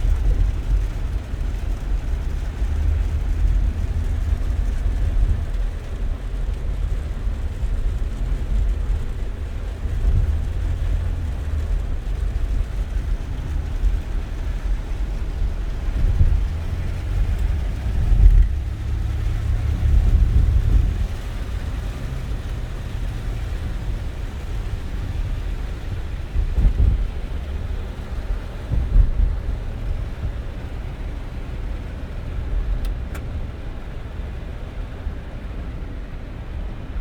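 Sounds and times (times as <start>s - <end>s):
car engine and road noise: 0.0s - 37.0s.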